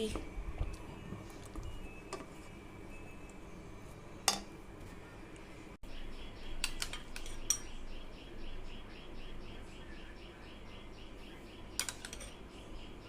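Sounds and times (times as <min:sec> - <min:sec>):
metal utensil clinking cookware: 0:06.6 - 0:07.7, 0:11.8 - 0:12.4.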